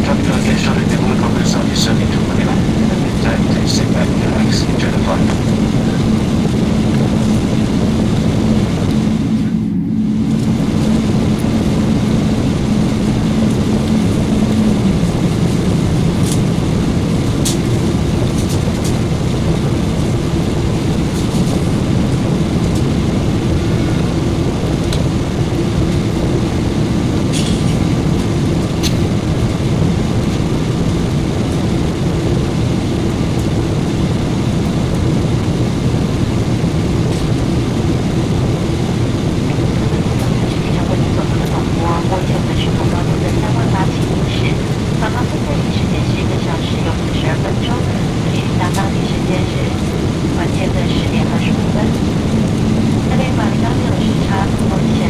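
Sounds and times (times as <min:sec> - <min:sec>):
airplane cabin airflow: 0:00.0 - 0:55.0
jet engine hum: 0:00.0 - 0:55.0.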